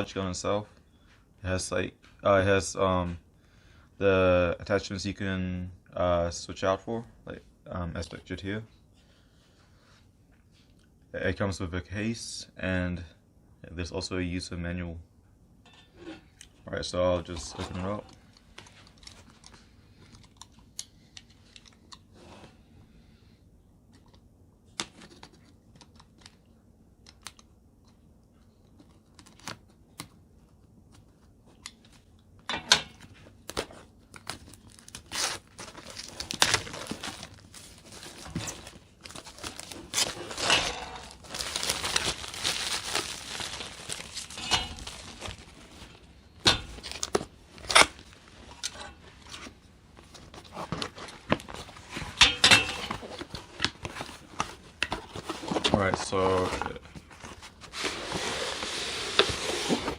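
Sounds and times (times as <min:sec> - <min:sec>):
packaging tearing and rustling: 0:33.4 - 0:52.1.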